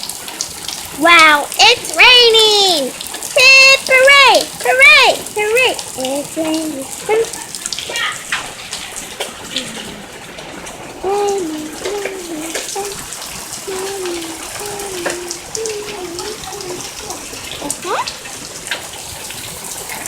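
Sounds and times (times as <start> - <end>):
heavy rain pouring: 0.0 - 20.0
water drips and splashes: 0.0 - 20.0
person humming: 6.0 - 7.3, 11.0 - 18.1.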